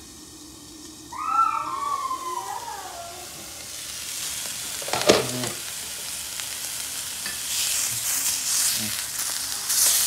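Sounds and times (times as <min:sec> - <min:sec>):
patty sizzling in a skillet: 0:00.0 - 0:10.0
pan lid clanking: 0:04.8 - 0:05.6.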